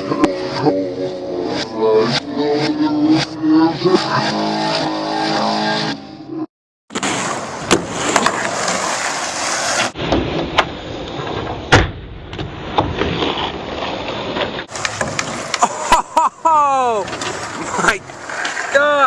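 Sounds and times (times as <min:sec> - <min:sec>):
skateboard wheels rolling on pavement: 0:06.9 - 0:11.7, 0:12.3 - 0:15.9, 0:16.7 - 0:19.0
skateboard clacks: 0:14.6 - 0:15.6.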